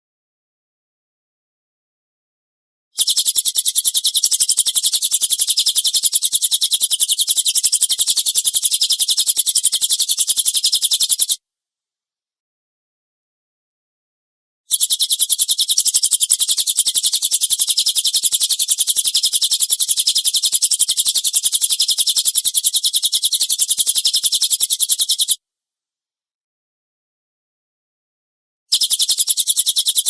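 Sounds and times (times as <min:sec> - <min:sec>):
songbird rattling call: 0:03.0 - 0:11.4, 0:14.7 - 0:25.4, 0:28.7 - 0:30.0.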